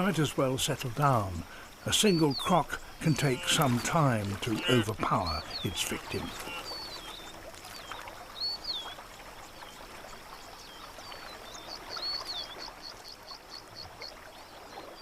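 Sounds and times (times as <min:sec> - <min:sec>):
river water flowing: 0:00.0 - 0:15.0
birds whistling swooping notes: 0:02.0 - 0:08.9.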